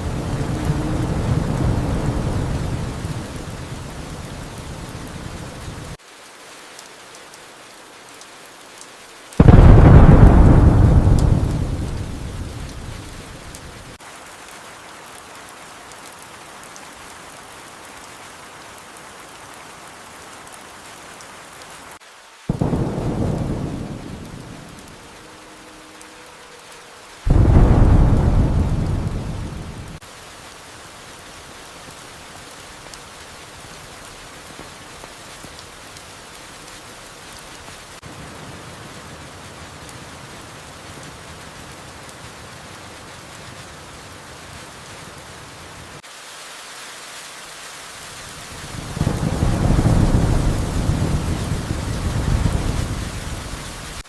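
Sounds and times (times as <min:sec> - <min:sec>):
thunder rolling: 0:00.0 - 0:05.6, 0:09.4 - 0:14.0, 0:22.5 - 0:25.4, 0:27.3 - 0:30.0, 0:48.6 - 0:54.0
steady rain: 0:00.0 - 0:54.0.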